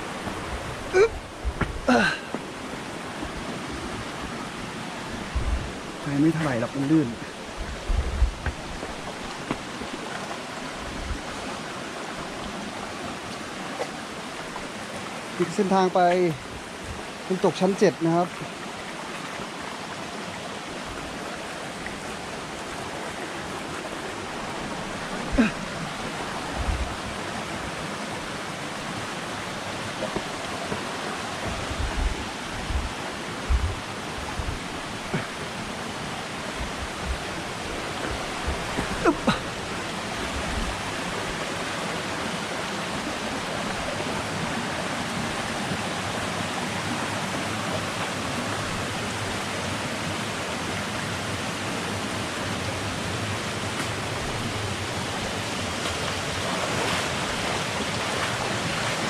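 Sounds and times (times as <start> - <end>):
waterfall rushing over rock: 0.0 - 59.0
low knocks and bumps: 1.4 - 2.4, 31.4 - 34.6.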